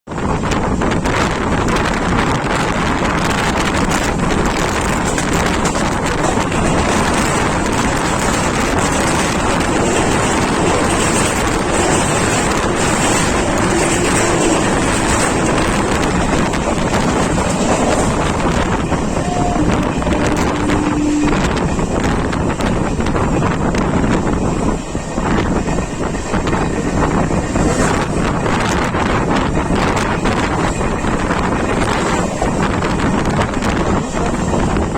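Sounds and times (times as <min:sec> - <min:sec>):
train wheels rumbling on track: 0:00.0 - 0:34.9
wind buffeting microphone: 0:00.1 - 0:34.9.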